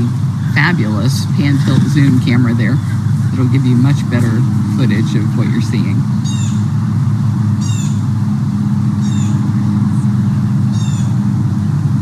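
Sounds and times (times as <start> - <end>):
low mechanical hum: 0.0 - 12.0
bird chirping: 6.1 - 6.7, 7.5 - 8.0, 8.9 - 11.2.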